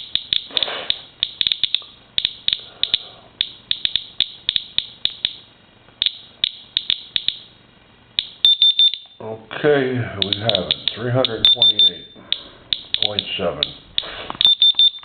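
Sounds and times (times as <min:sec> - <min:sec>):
geiger counter clicking: 0:00.0 - 0:07.5, 0:08.2 - 0:09.2, 0:10.2 - 0:15.0.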